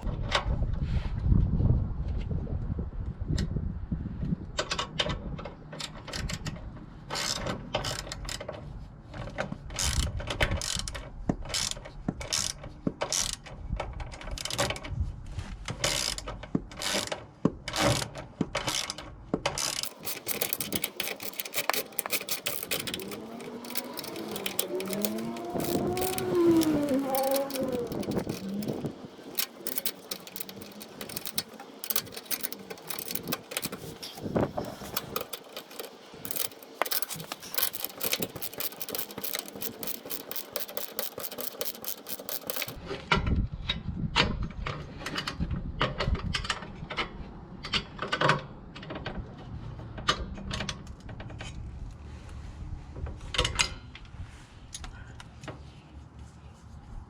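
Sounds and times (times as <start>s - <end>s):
tools and metal parts rattling: 4.6s - 15.0s, 15.7s - 42.8s.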